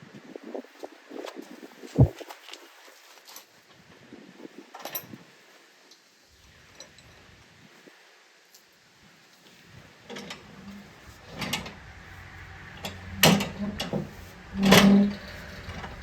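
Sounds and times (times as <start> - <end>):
metal clunks and scrapes: 10.1 - 16.0.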